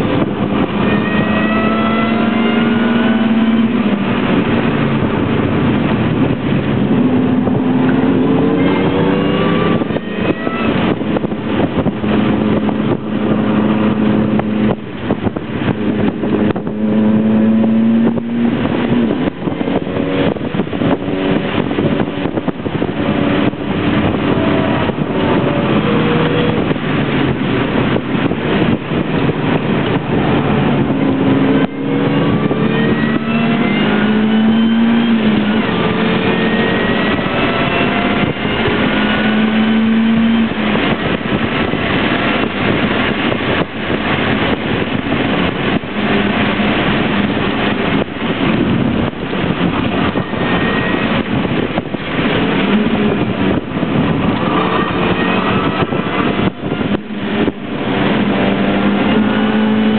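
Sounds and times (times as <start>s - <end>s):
car engine accelerating: 0.0s - 59.9s
road and wind noise: 0.0s - 59.9s.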